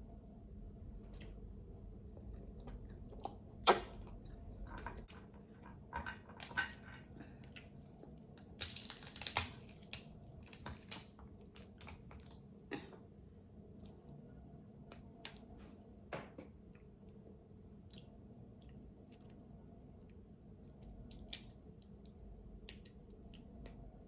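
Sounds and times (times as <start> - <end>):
chewing: 2.0 - 5.4
crab shell cracking: 8.5 - 12.4, 20.8 - 23.8.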